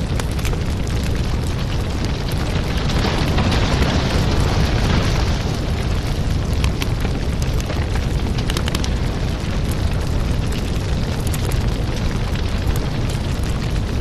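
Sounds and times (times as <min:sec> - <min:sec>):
crackles and pops of fire: 0:00.0 - 0:14.0
firewood burning: 0:00.0 - 0:14.0
rushing hiss of flames: 0:00.0 - 0:14.0.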